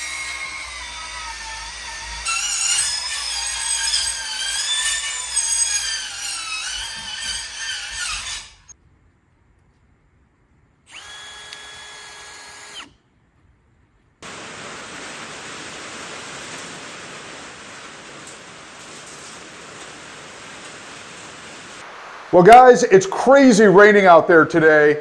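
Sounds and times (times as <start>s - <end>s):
power tool cutting: 0.0s - 8.8s, 10.9s - 12.9s
motor whining: 10.9s - 13.0s
heavy rain hissing: 14.2s - 24.0s.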